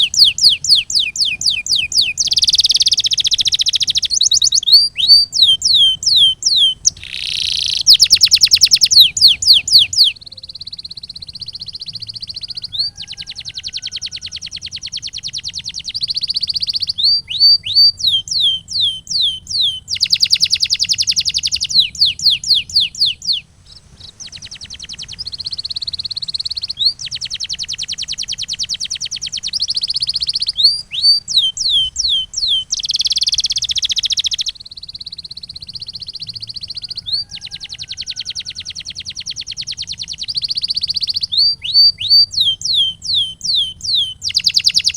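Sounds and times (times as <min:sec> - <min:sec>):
canary singing: 0:00.0 - 0:44.9.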